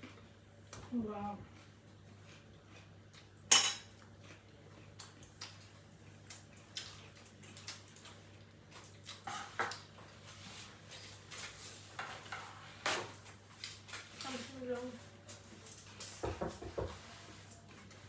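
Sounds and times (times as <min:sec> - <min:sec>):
quiet chewing: 0:00.0 - 0:11.5
cutlery clinking on dishes: 0:03.5 - 0:04.0.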